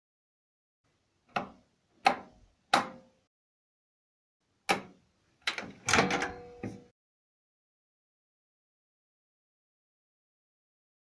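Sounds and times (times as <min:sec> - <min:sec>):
microwave clicks and knocks: 0:04.7 - 0:06.9.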